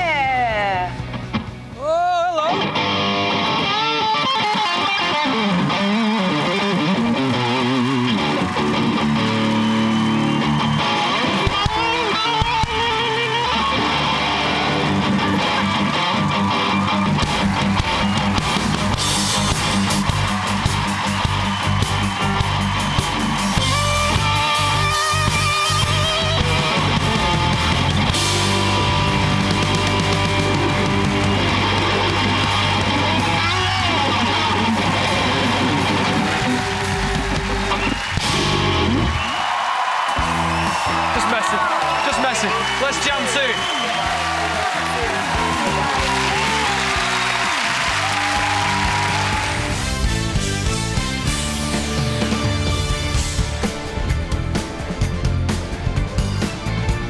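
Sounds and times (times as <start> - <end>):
electric guitar playing: 2.5 - 39.2.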